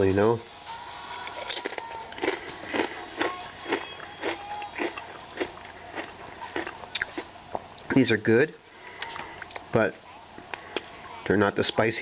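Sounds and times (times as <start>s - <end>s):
chewing crunchy potato chips: 1.2s - 7.8s.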